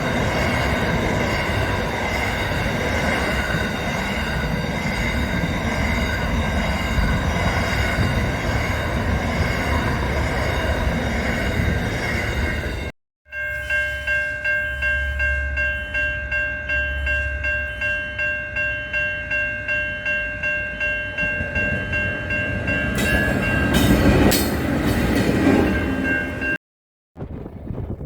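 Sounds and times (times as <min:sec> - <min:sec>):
train rumble: 0:00.0 - 0:12.9, 0:20.7 - 0:26.6
level crossing warning bell: 0:00.0 - 0:26.6.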